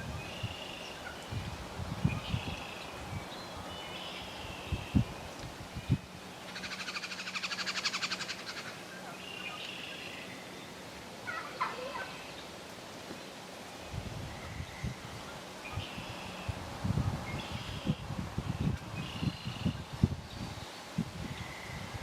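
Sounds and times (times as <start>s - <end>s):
wild turkey gobbling: 11.2s - 12.4s.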